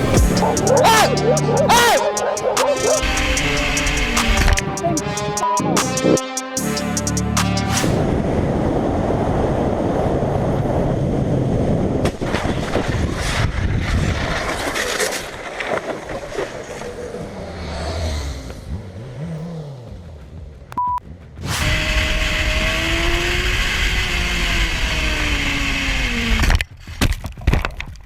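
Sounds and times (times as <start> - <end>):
motorcycle engine: 0.0 - 6.0, 16.9 - 26.3
wind and road noise: 7.8 - 28.0
short beep: 20.8 - 21.0.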